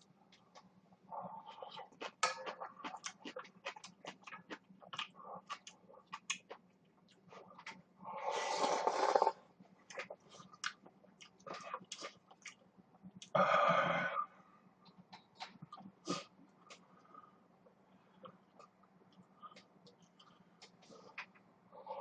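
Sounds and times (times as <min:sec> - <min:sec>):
wet chewing and smacking: 0:00.3 - 0:07.9, 0:09.8 - 0:13.4, 0:14.8 - 0:16.9.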